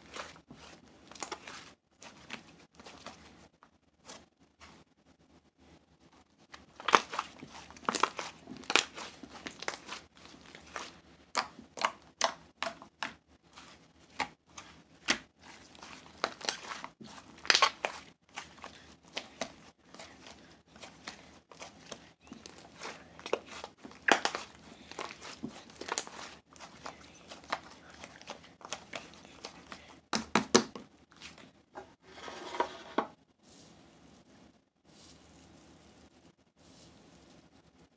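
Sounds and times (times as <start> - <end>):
crinkling and rustling: 0.0 - 4.9, 6.1 - 30.0.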